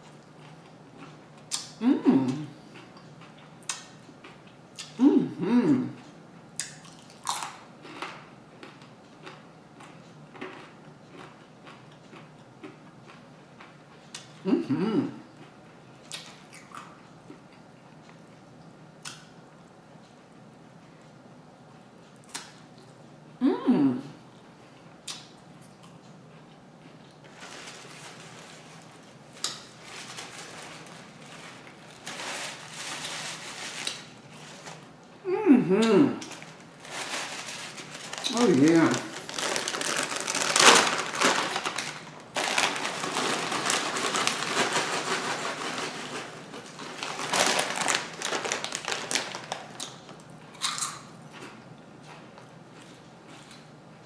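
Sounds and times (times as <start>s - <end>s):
crackly chewing: 6.0s - 14.4s, 25.0s - 35.1s, 36.2s - 53.8s
person chewing: 6.6s - 13.2s.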